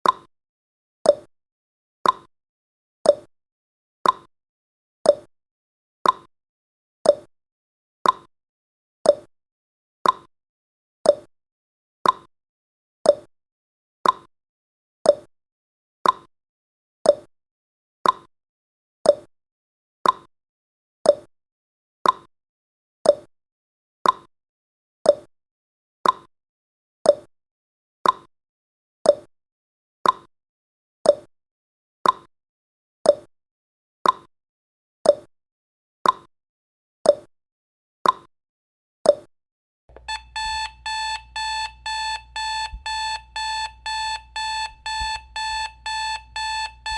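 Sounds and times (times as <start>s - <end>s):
timer ticking: 39.9s - 46.9s.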